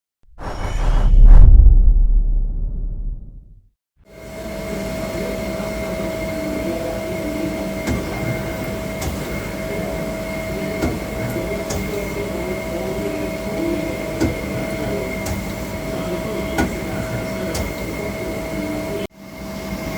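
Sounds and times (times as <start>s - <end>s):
lathe mechanical hum: 4.1s - 19.9s.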